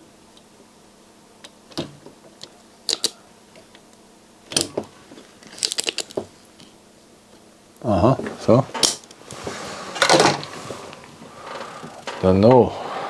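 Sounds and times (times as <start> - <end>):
faint steady hum: 0.0 - 13.0
small tools clicking and tapping: 1.4 - 3.8.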